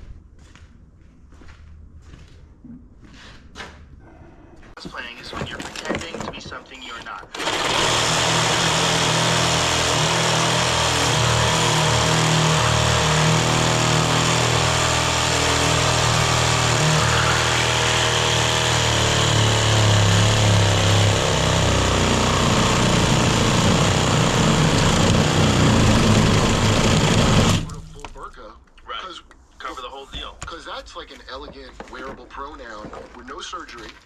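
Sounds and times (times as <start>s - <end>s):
power tool running under load: 7.3s - 28.1s.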